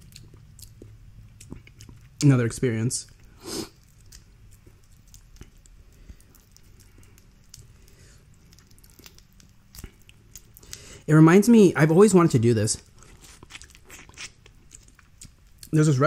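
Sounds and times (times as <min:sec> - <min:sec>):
quiet chewing: 0:00.0 - 0:02.3, 0:03.0 - 0:11.1, 0:12.8 - 0:15.8
seafood shells clicking: 0:04.9 - 0:10.8.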